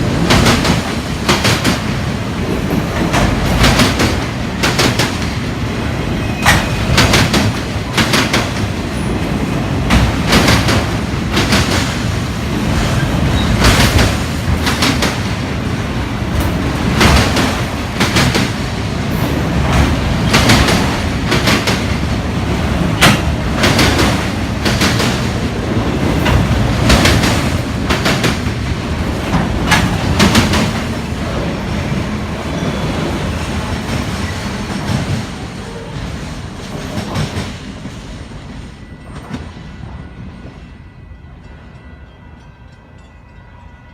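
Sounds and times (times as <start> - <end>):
freight train rumble: 0.0 - 43.9
train wheels clacking over rail joints: 0.2 - 5.4, 6.4 - 12.0, 12.6 - 15.3, 16.3 - 22.1, 22.8 - 25.4, 26.0 - 31.1.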